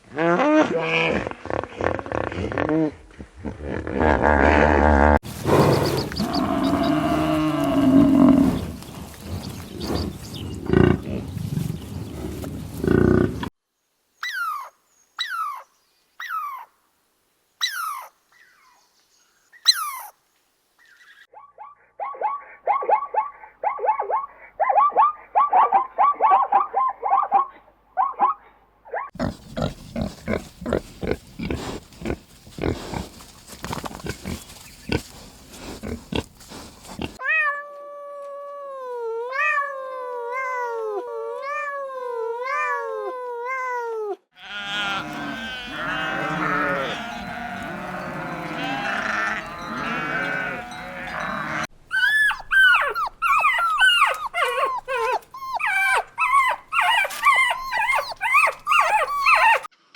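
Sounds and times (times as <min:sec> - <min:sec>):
animal grunts: 0:00.6 - 0:11.4, 0:12.2 - 0:13.5, 0:29.2 - 0:33.1, 0:34.0 - 0:37.2
falling animal call: 0:04.0 - 0:08.6, 0:37.2 - 0:59.7
chorus of animal calls: 0:05.5 - 0:08.8, 0:44.4 - 0:59.7
high falling animal cries: 0:05.6 - 0:08.6, 0:44.4 - 0:59.7.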